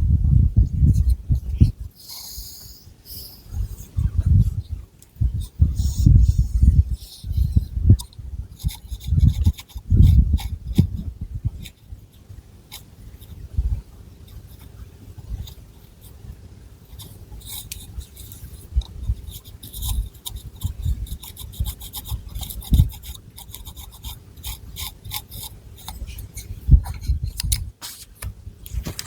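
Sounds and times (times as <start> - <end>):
fingernails scratching through hair: 8.6 - 11.8, 16.9 - 29.0.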